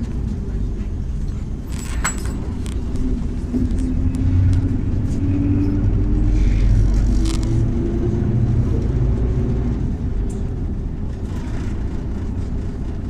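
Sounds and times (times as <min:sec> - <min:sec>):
bus body rattles: 0:00.0 - 0:13.0
bus engine and road rumble: 0:00.0 - 0:13.0.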